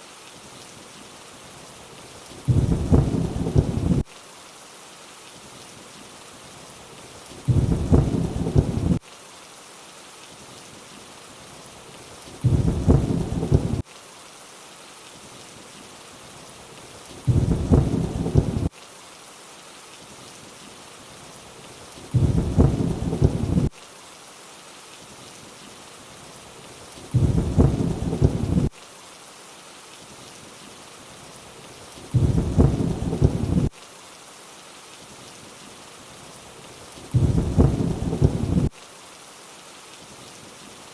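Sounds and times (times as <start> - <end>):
rain hiss: 0.0 - 40.9
low thunder rumbles: 2.5 - 4.0, 7.5 - 9.0, 12.4 - 13.8, 17.3 - 18.7, 22.1 - 23.7, 27.1 - 28.7, 32.1 - 33.7, 37.1 - 38.7.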